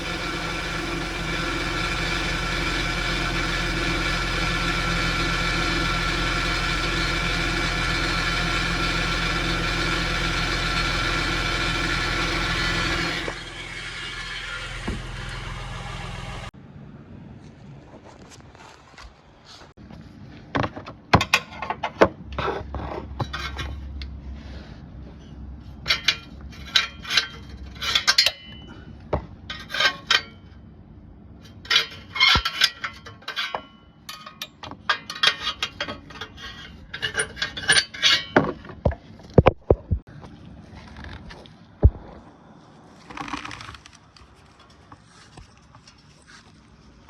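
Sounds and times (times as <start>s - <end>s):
low engine drone: 0.0s - 17.9s
metallic rattling and clinking: 31.5s - 38.7s.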